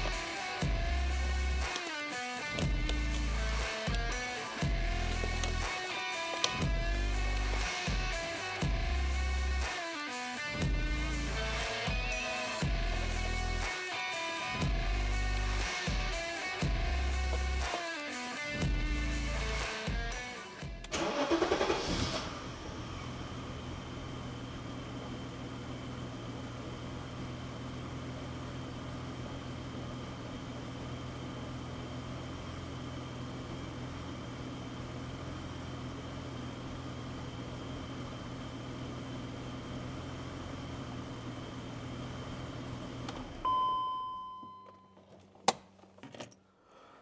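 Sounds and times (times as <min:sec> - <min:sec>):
car engine idling: 0:00.0 - 0:01.8, 0:02.4 - 0:09.7, 0:10.4 - 0:17.7, 0:18.6 - 0:43.5
short ringing tone: 0:43.4 - 0:45.0.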